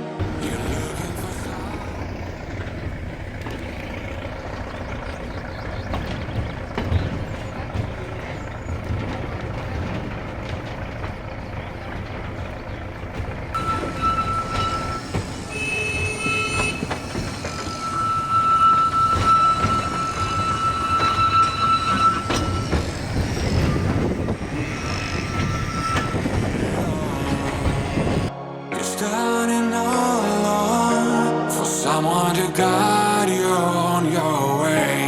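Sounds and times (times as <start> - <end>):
train rumbling on rails: 0.0 - 28.4
high wheel squeal: 0.2 - 28.3.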